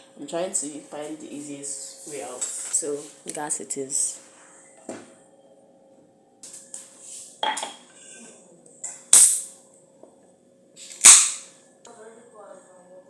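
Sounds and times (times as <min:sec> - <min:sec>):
pan and utensils clattering: 0:07.4 - 0:08.2, 0:08.9 - 0:09.5, 0:10.9 - 0:11.5.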